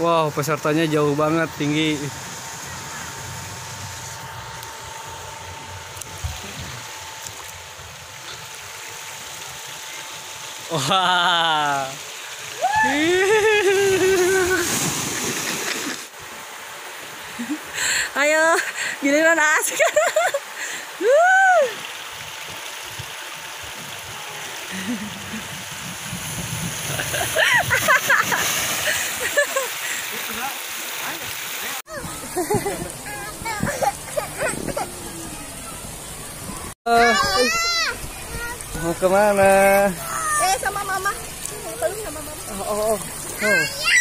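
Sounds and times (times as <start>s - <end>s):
faint steady whine: 0.0s - 30.0s
running splashing water: 0.2s - 44.0s.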